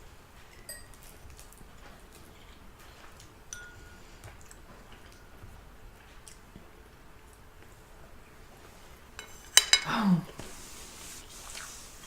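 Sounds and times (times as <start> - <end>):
utensils clinking on dishes: 0.5 - 1.1, 3.5 - 4.0, 9.2 - 10.0.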